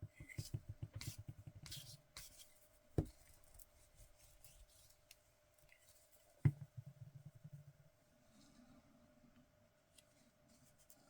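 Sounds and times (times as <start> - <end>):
object knocking on table: 6.5 - 7.7.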